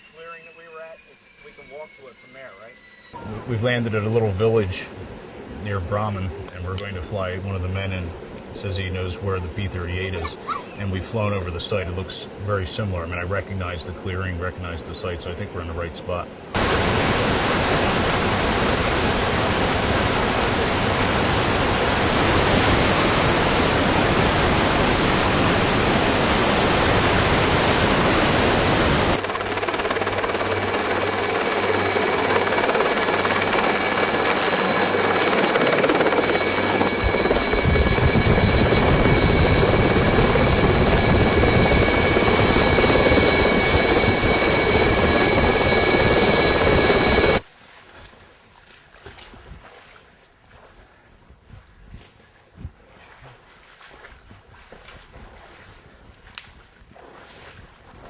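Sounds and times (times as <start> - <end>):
helicopter engine and rotor: 0.0 - 3.5, 16.5 - 47.4
high-pitched whine: 0.0 - 4.6, 16.6 - 47.4
wind rushing: 35.4 - 47.3.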